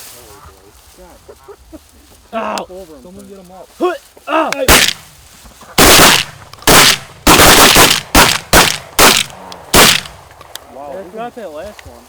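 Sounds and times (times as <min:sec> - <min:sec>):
shotguns firing: 0:04.7 - 0:05.2, 0:05.8 - 0:10.5.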